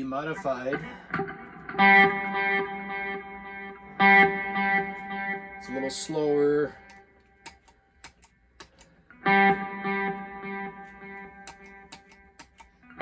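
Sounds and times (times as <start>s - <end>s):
electric guitar chord with echoes: 0.3s - 6.2s, 9.2s - 11.4s.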